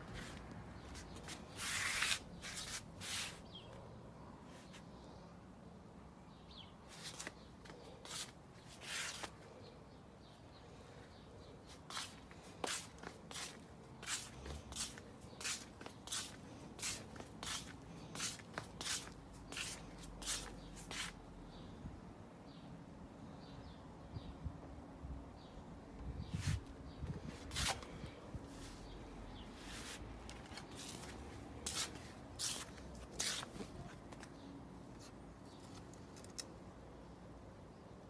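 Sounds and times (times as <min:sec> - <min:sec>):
footsteps crunching on dry ground: 0:11.9 - 0:21.2, 0:29.6 - 0:33.7.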